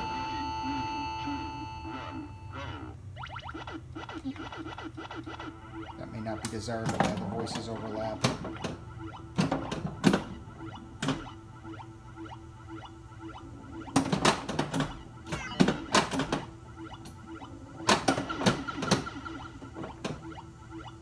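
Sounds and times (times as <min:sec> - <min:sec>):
pulsing electronic background tone: 0:00.0 - 0:21.0
synthesized game sound effects: 0:00.0 - 0:21.0
sharp mechanical knocks: 0:06.4 - 0:11.4, 0:13.2 - 0:20.4.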